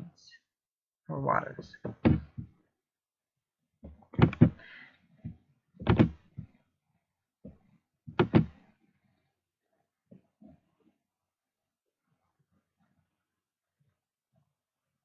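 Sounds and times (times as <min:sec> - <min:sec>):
dull knocks in a room: 0:01.9 - 0:02.6, 0:05.2 - 0:06.6, 0:07.4 - 0:08.7.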